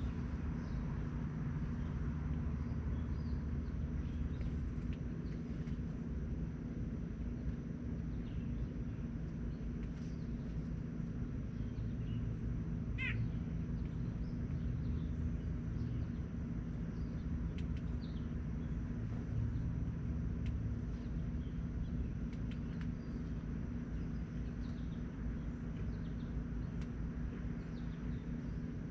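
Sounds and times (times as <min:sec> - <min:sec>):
steady low rumble: 0:00.0 - 0:28.9
faint chirps and ticks: 0:00.4 - 0:28.9
wavering bird call: 0:13.0 - 0:13.4.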